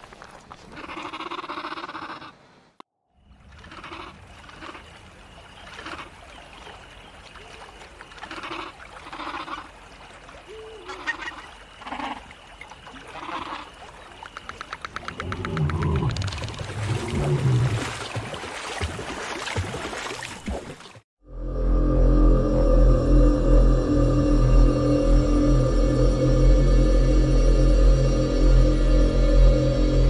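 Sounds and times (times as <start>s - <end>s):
creature call: 0.7s - 2.4s, 3.6s - 4.9s, 8.2s - 9.7s, 10.5s - 12.3s.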